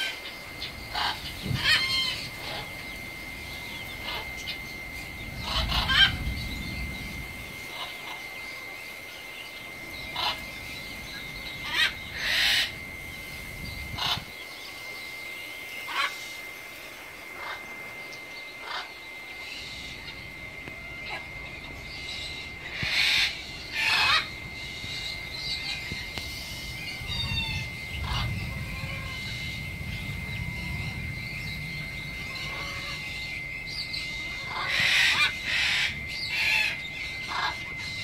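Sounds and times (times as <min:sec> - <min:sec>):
birds calling: 0:00.0 - 0:38.0
low rumble: 0:00.8 - 0:08.2, 0:24.3 - 0:34.5.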